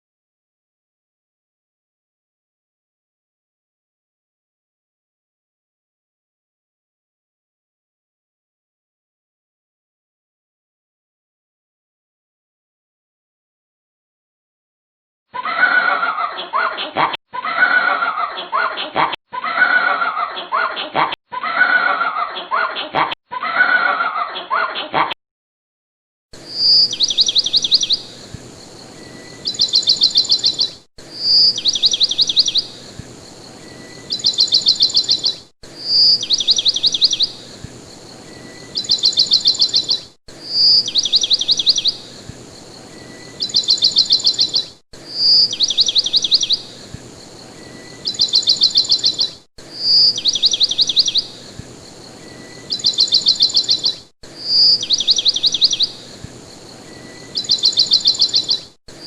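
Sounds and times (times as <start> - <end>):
bird whistle and trills: 26.5 - 28.2, 29.0 - 32.8, 33.8 - 37.4, 38.3 - 42.2, 42.9 - 46.8, 47.6 - 51.4, 52.2 - 56.1, 56.9 - 58.7.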